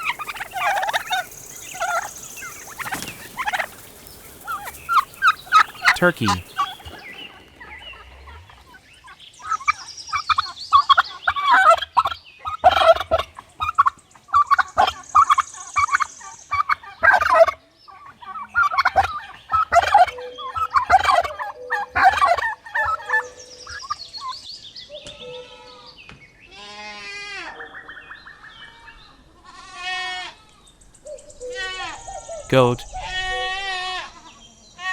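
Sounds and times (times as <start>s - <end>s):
turkey gobbling: 0.0s - 7.1s.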